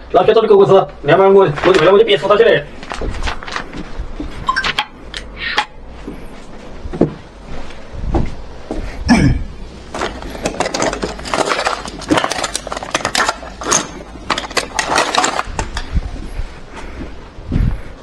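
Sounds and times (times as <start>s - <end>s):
hard objects clattering: 9.9s - 16.5s.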